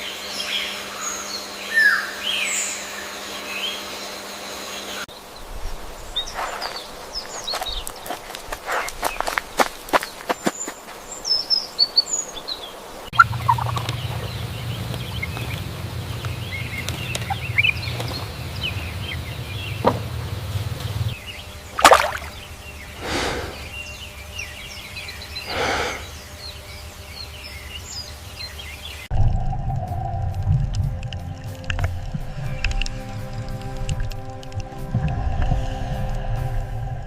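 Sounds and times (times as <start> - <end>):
small birds chirping: 0.0 - 29.1
turkeys gobbling: 13.1 - 19.1.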